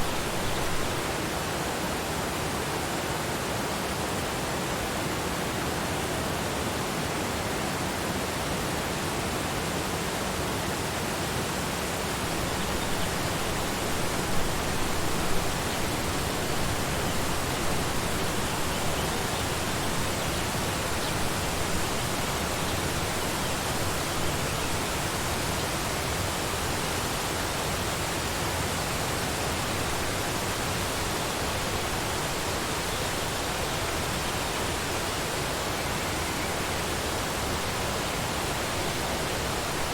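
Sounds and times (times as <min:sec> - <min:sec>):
waterfall rushing: 0:00.0 - 0:03.4, 0:11.8 - 0:39.9.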